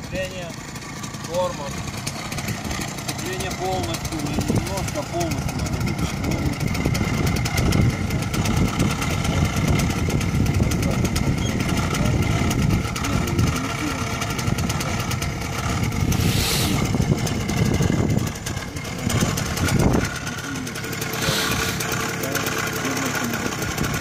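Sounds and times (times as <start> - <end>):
motorcycle engine running: 0.0 - 24.0
brief hiss: 16.2 - 16.8.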